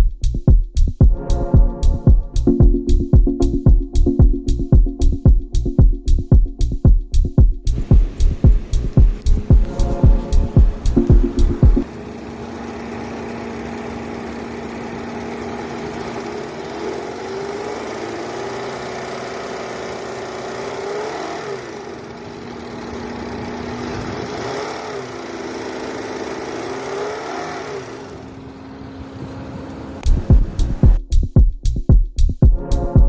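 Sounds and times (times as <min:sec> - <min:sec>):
car engine revving: 0:07.7 - 0:31.0.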